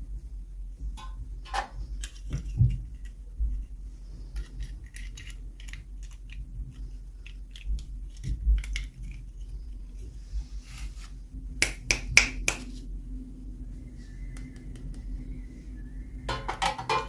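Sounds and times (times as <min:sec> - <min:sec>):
low steady hum: 0:00.0 - 0:17.0
plastic packaging clicks and rustles: 0:04.3 - 0:09.7.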